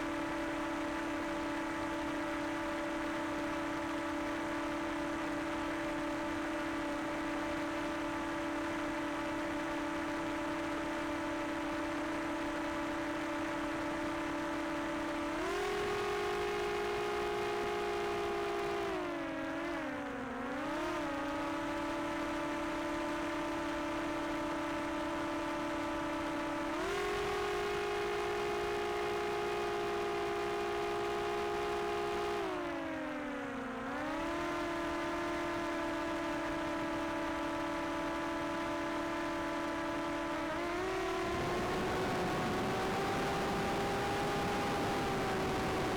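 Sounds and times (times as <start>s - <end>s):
drone propellers humming: 34.2s - 45.9s.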